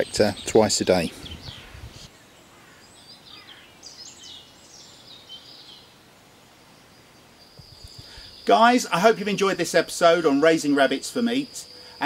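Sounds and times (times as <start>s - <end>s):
high bird chirps: 7.4s - 8.7s.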